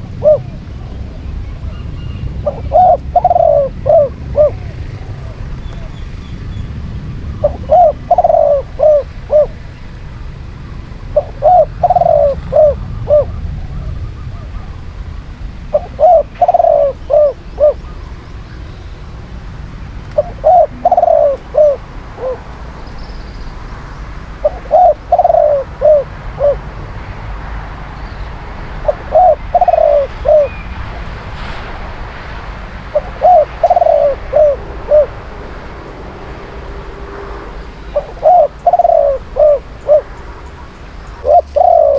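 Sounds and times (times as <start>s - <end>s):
dove cooing: 0.0s - 1.8s, 2.4s - 6.0s, 7.4s - 9.6s, 11.2s - 14.8s, 15.7s - 18.0s, 20.2s - 22.5s, 24.4s - 26.6s, 28.8s - 30.6s, 32.9s - 35.2s, 37.9s - 40.2s, 41.2s - 41.9s.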